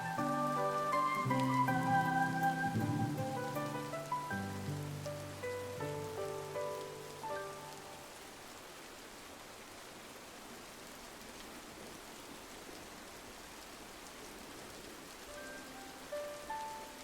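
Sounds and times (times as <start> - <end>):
soft music notes: 0.0 - 8.1, 15.3 - 17.0
rain on a window: 0.0 - 17.0.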